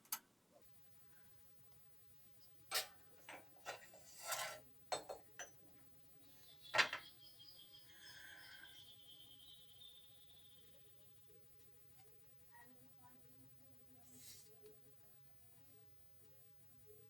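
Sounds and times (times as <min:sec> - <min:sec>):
metal scrape: 0:03.6 - 0:04.6
faint high steady tone: 0:05.4 - 0:17.0.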